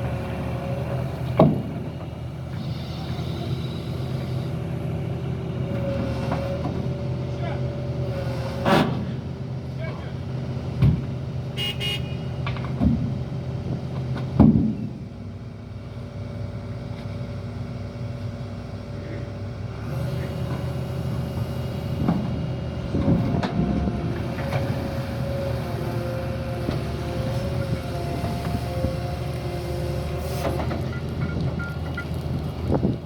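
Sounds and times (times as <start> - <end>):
diesel engine running: 0.0 - 33.0
metal clunks and knocks: 1.3 - 2.1, 10.8 - 11.1, 12.4 - 13.3, 13.9 - 15.0.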